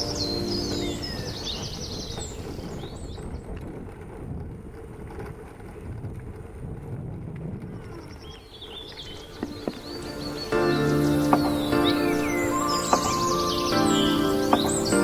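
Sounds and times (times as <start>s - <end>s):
held music chord: 0.0s - 1.9s, 9.5s - 15.0s
birds chirping: 0.0s - 3.6s, 7.7s - 15.0s
low outdoor noise: 0.0s - 15.0s.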